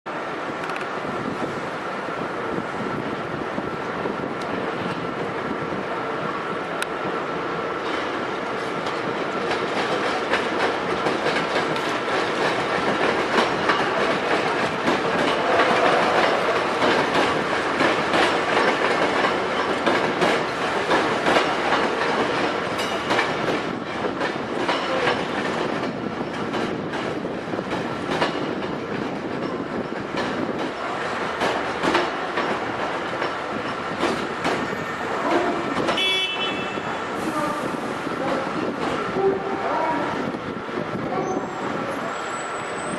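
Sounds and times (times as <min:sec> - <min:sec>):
train rumbling on rails: 0:00.1 - 0:42.9
wheels clicking over rail joints: 0:07.8 - 0:36.1.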